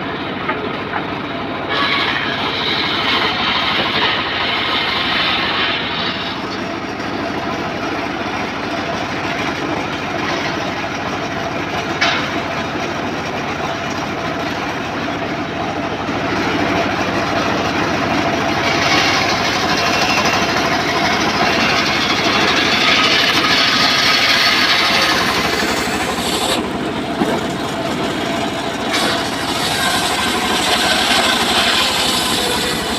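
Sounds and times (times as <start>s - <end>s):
circular saw cutting wood: 1.6s - 12.8s, 16.2s - 32.9s.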